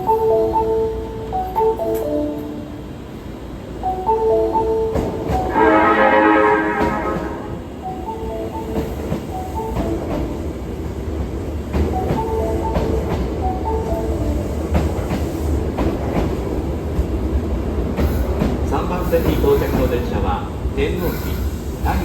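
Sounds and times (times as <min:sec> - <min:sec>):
train rumble and wheel clicks: 0:00.0 - 0:22.0
train horn blast: 0:05.4 - 0:07.7.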